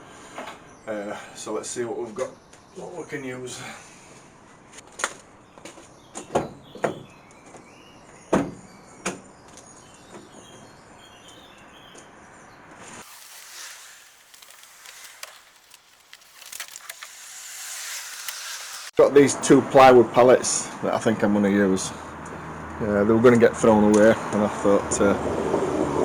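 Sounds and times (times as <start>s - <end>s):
small birds chirping: 0.0s - 19.0s
sharp knocks: 6.2s - 7.1s, 8.3s - 9.3s
steady high hiss: 12.8s - 19.6s.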